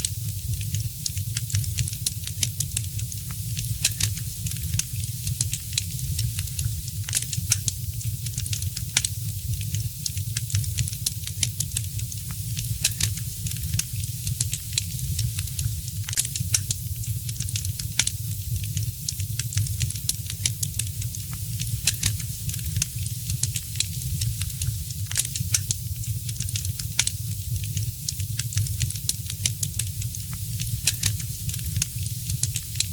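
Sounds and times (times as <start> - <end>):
wood fire crackling and popping: 0.0 - 32.9.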